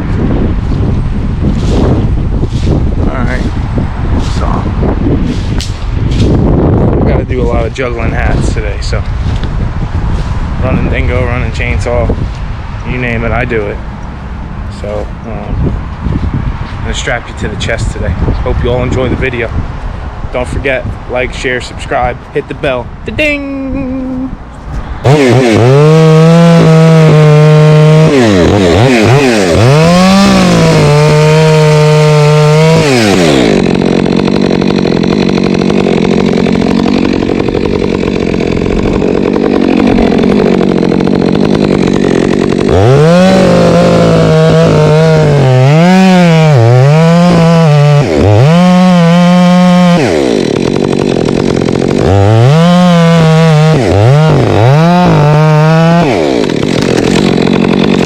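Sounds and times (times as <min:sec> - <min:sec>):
chainsaw cutting wood: 0:00.1 - 0:13.8, 0:24.1 - 0:58.0
chainsaw revving: 0:25.0 - 0:58.0.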